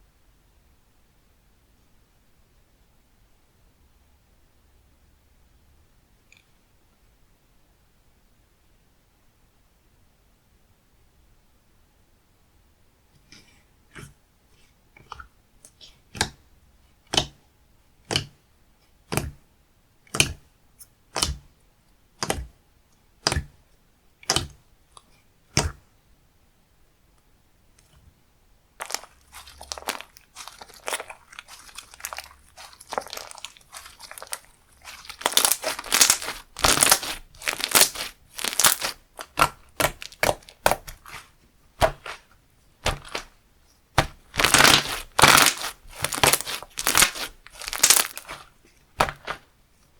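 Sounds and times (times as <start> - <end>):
slime popping: 28.8 - 43.4, 44.0 - 49.4
slime crackling: 28.8 - 49.5.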